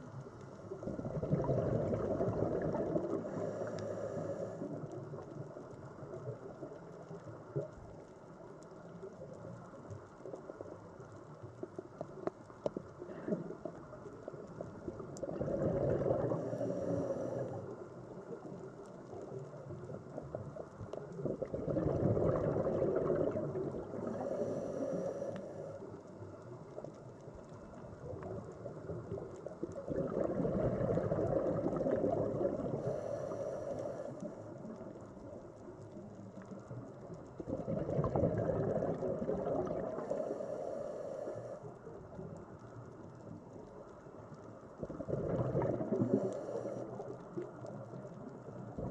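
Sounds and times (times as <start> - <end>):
sea water surging: 0.8 - 4.9, 21.2 - 25.9, 29.4 - 34.4
faint high hiss: 39.3 - 44.8.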